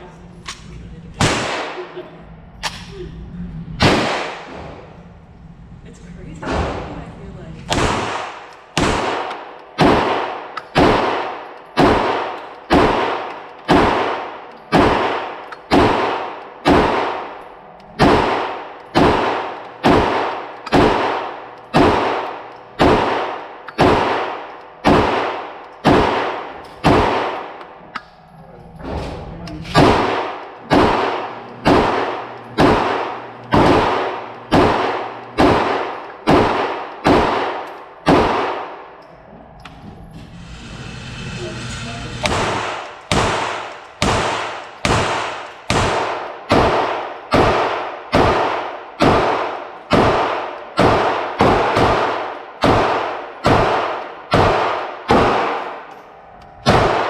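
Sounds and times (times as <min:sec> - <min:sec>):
pistol shots: 0:01.2 - 0:02.0, 0:03.8 - 0:04.9, 0:07.7 - 0:27.8, 0:29.7 - 0:39.0, 0:42.2 - 0:55.9, 0:56.6 - 0:57.0.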